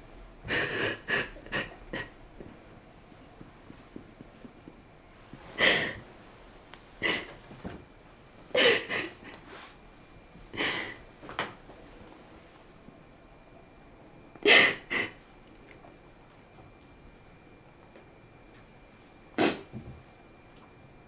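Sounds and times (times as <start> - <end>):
person sniffing and breathing: 8.6 - 9.8.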